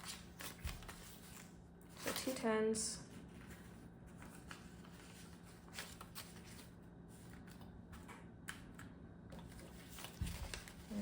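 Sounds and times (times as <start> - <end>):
paper banknotes rustling: 0.0 - 2.4, 3.2 - 7.7, 9.4 - 11.0.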